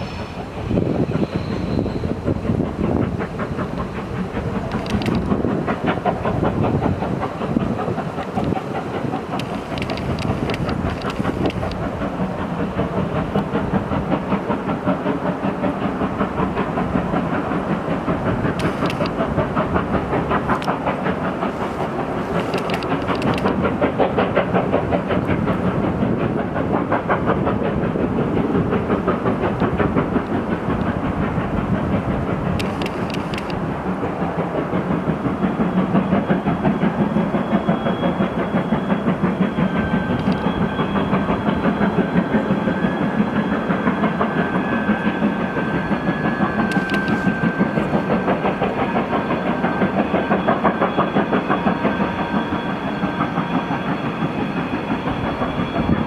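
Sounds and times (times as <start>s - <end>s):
steam locomotive exhaust beats: 0.0s - 56.0s.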